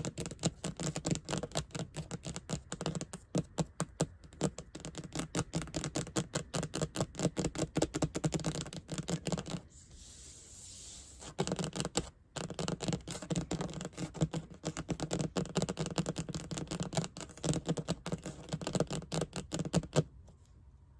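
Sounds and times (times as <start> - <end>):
soft hissy scratching: 4.2 - 20.6.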